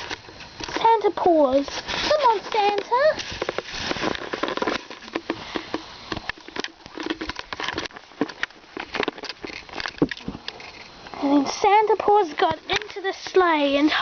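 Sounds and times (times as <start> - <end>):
rustling of fabric: 1.5 - 5.6.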